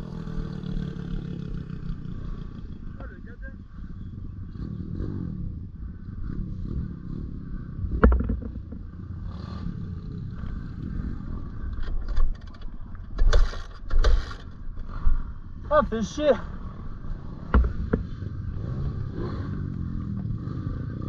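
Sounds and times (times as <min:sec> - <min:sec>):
motorbike engine rumble: 0:00.0 - 0:21.0
sharp knocks: 0:08.0 - 0:08.8, 0:17.5 - 0:18.0.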